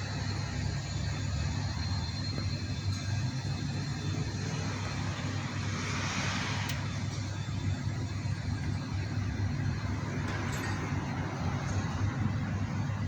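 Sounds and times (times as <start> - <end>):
engine idling hum: 0.0 - 13.0
hiss: 4.4 - 7.4.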